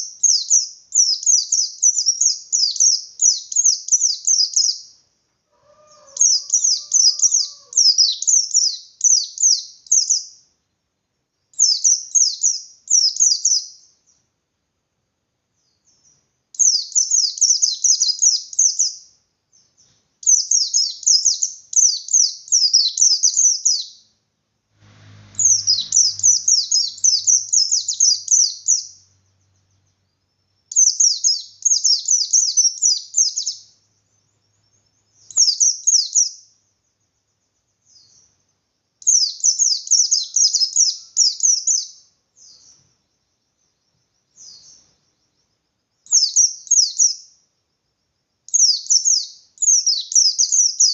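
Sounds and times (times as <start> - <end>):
bird twittering song: 0.0 - 14.4, 15.5 - 24.2, 25.1 - 47.5, 48.5 - 50.9
single short bird calls: 5.5 - 8.1.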